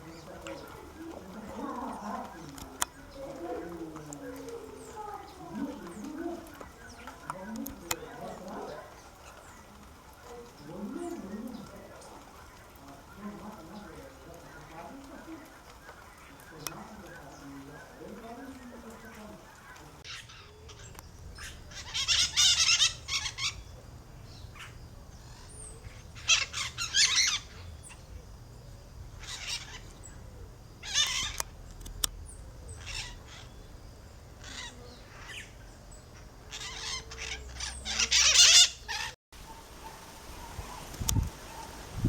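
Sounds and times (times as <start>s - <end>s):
bird squawking harshly: 36.5s - 39.2s.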